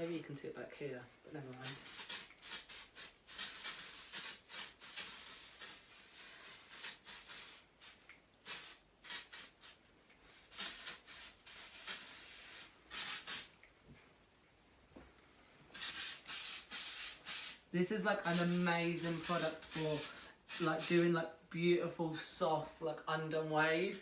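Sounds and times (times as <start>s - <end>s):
hair spray hissing bursts: 1.6s - 9.8s, 10.4s - 13.5s, 15.7s - 21.1s.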